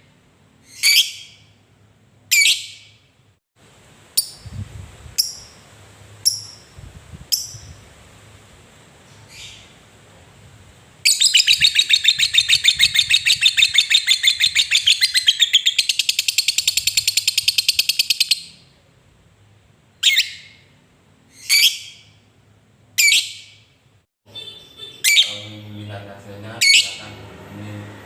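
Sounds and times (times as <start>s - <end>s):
lovebird chattering song: 0.6s - 1.4s, 5.2s - 5.6s, 6.2s - 7.8s, 11.1s - 18.6s, 21.3s - 22.0s, 24.4s - 25.6s.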